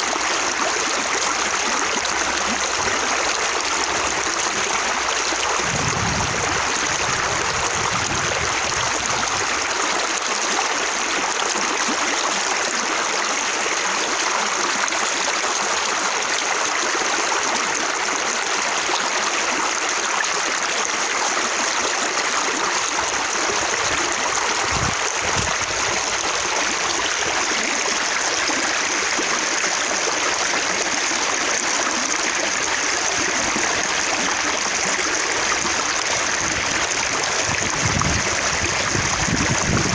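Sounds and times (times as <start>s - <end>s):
running water splashing: 0.0s - 12.0s
low rumble: 5.5s - 8.5s.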